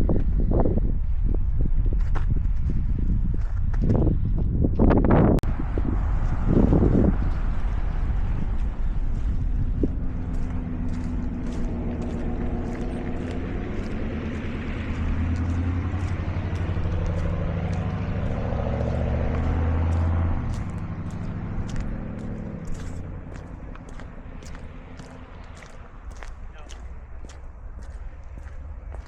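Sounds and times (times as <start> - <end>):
vehicle driving past: 5.4 - 29.0
footsteps crunching in snow: 5.8 - 29.0.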